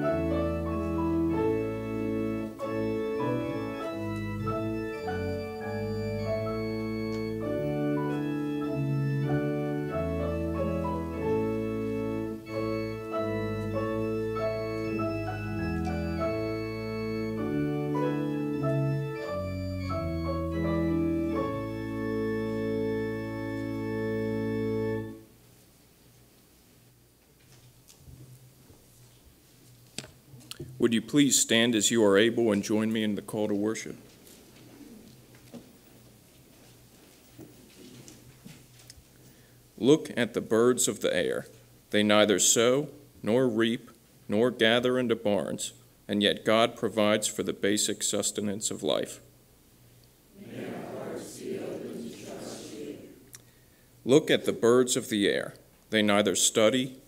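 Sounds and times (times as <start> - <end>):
organ playing held chords: 0.0 - 25.4.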